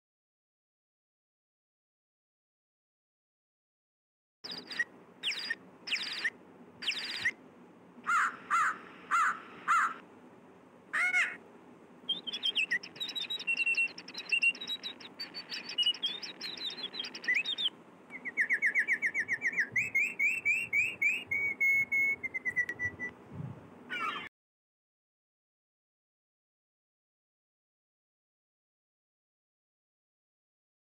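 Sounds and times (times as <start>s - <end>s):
birds singing and calling: 4.4s - 7.4s, 8.1s - 10.0s, 12.1s - 23.1s, 23.9s - 24.3s.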